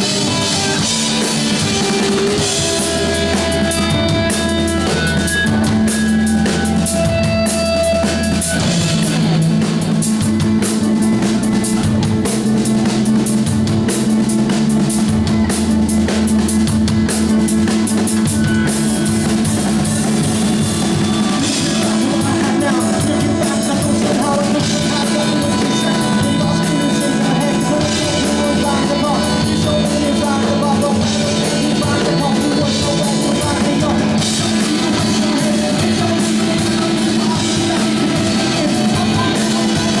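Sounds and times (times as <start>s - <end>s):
bass guitar: 0.0s - 40.0s
drum kit: 0.0s - 40.0s
electric guitar: 0.0s - 40.0s
person singing: 20.8s - 40.0s.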